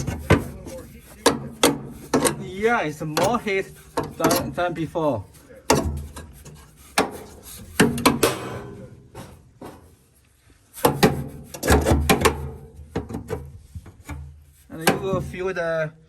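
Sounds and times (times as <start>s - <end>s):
hard object scraping: 0.0s - 12.6s.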